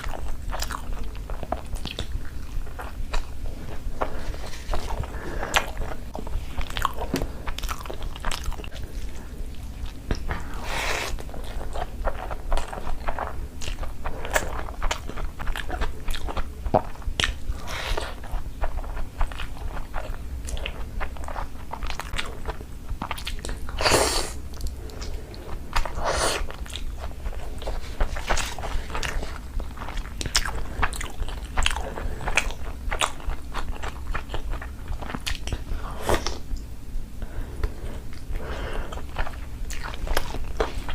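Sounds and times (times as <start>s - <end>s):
chewing and wet mouth clicks: 0.0s - 3.4s, 11.4s - 17.4s, 18.0s - 23.7s, 24.5s - 36.7s.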